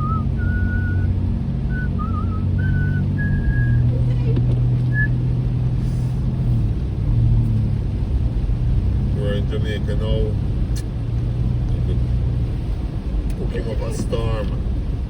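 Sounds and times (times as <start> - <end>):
person whistling: 0.0 - 3.9, 4.9 - 5.2
car engine and road rumble: 0.0 - 15.0.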